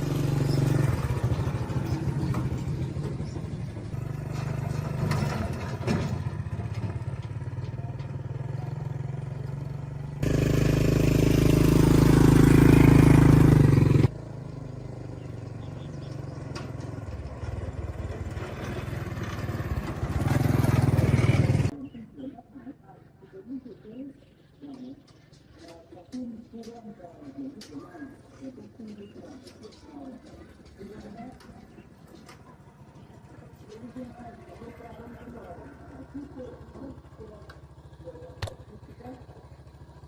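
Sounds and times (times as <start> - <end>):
engine running: 0.0 - 22.0, 26.8 - 40.0.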